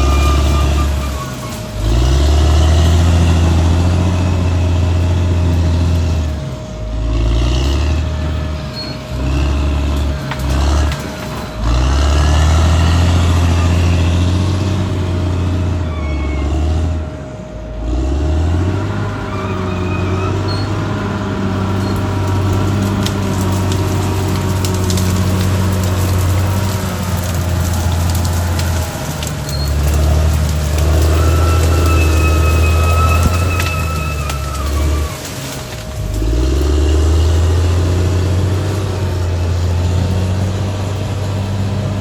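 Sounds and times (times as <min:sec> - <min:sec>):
short high squeaks and clicks: 0:00.0 - 0:01.7, 0:08.7 - 0:09.1, 0:15.8 - 0:16.7, 0:19.1 - 0:21.0, 0:21.6 - 0:35.9
bulldozer diesel engine running: 0:00.0 - 0:42.0.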